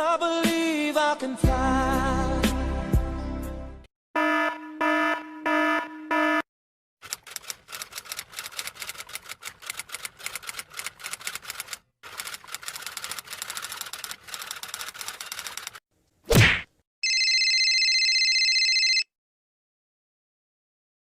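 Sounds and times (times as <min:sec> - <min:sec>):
typewriter keys clacking: 0:07.0 - 0:15.8.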